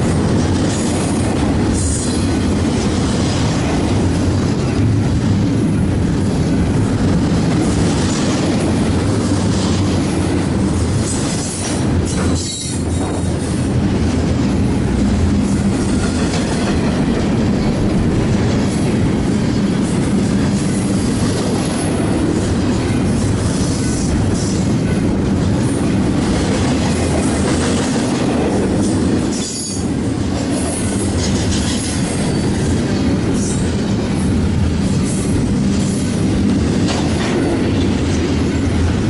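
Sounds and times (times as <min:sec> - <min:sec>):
wheels clacking over rail joints: 0:00.0 - 0:34.0, 0:34.9 - 0:38.9
freight train rumbling past: 0:00.0 - 0:39.0.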